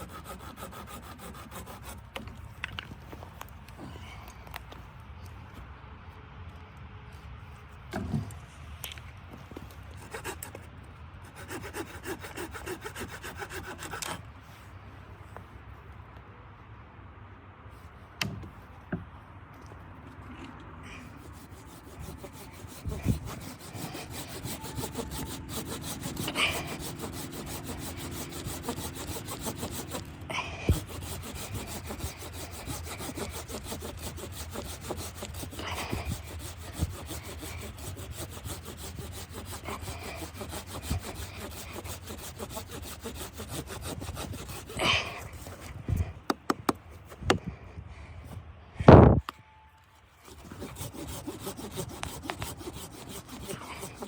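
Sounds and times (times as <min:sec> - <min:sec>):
hand saw rasping wood: 0:00.0 - 0:02.2, 0:10.0 - 0:10.6, 0:11.2 - 0:14.2, 0:20.9 - 0:47.4, 0:50.2 - 0:54.0.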